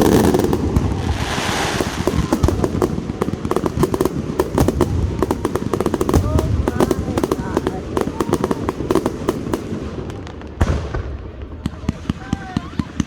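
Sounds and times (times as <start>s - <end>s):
fireworks hissing burst: 0.0s - 10.2s
fireworks crackling pops and bangs: 0.0s - 13.0s.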